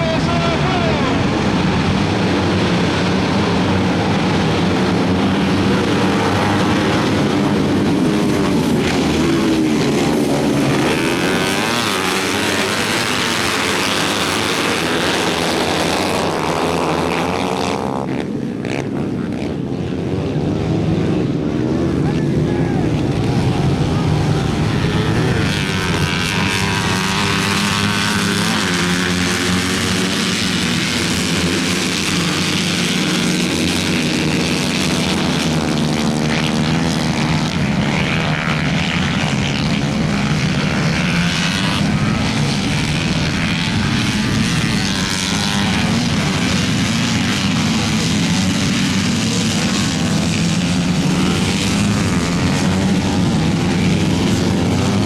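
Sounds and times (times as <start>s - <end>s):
small engine running: 5.8s - 17.5s.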